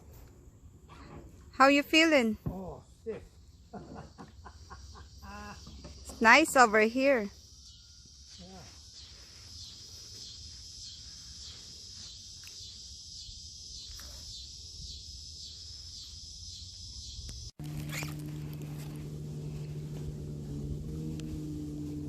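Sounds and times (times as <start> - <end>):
insects chirping: 0.0 - 22.0
low motor hum: 17.6 - 22.0.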